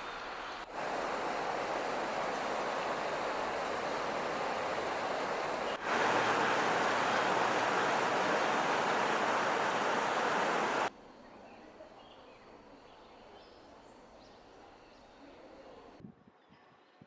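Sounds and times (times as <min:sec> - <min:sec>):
loud rushing noise: 0:00.8 - 0:10.9.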